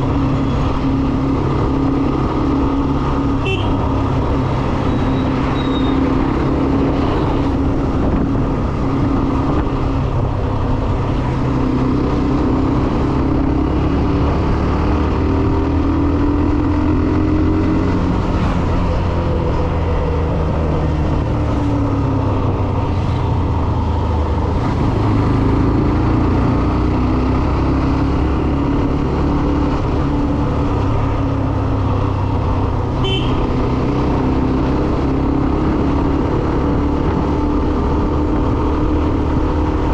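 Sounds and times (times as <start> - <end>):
wind and road noise: 0.0 - 39.9
motorcycle engine running: 28.2 - 39.9.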